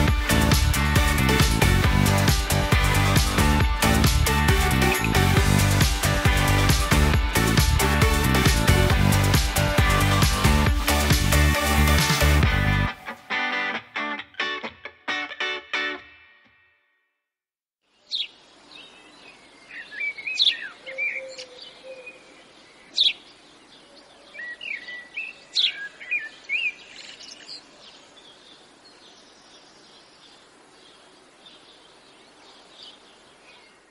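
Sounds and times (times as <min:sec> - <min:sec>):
steady background hiss: 0:17.9 - 0:33.9
birds chirping and singing: 0:18.1 - 0:33.9.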